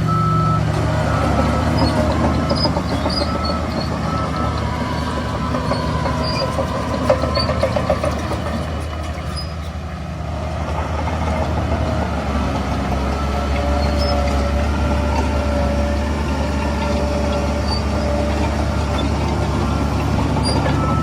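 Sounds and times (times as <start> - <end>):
diesel machinery running: 0.0 - 21.0
rapid squeaks: 1.7 - 4.6.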